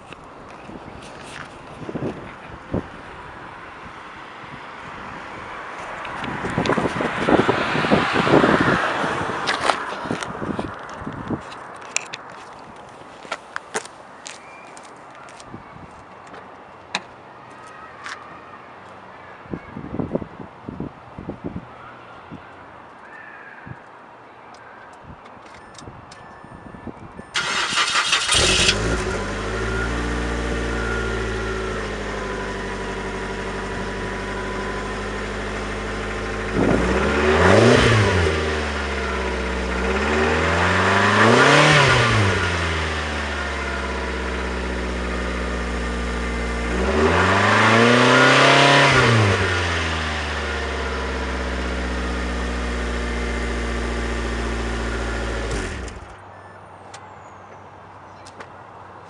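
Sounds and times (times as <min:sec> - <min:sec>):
car engine starting and idling: 0:27.3 - 0:56.6
car engine revving: 0:27.4 - 0:56.1.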